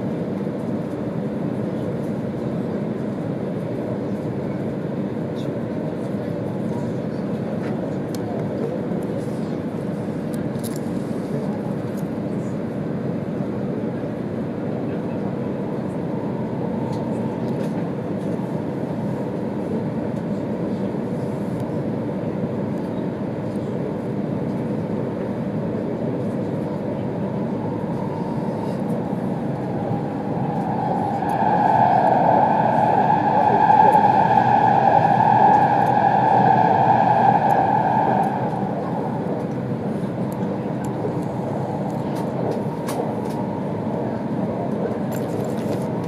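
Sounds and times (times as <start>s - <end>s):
train running noise inside cabin: 0.0s - 46.0s
steady pitched tone: 29.0s - 44.6s.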